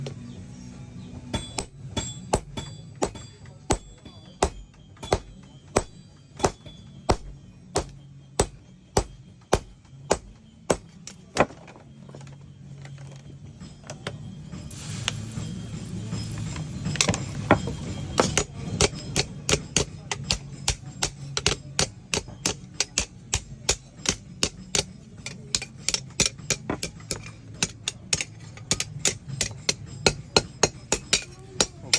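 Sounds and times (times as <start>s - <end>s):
hammer striking knife on anvil: 1.3s - 11.6s, 16.8s - 31.9s.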